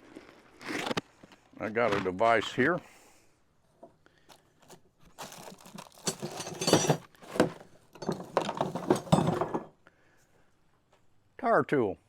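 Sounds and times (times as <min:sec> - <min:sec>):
tire tool clanking on metal: 0:06.1 - 0:09.7.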